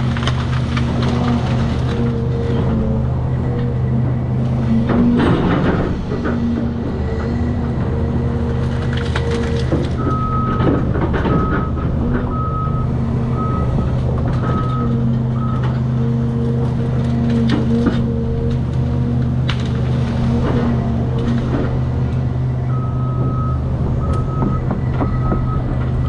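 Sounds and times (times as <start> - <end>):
debris knocks and cracks: 0.0 - 2.2, 8.5 - 12.4
heavy machine engine running: 0.0 - 26.0.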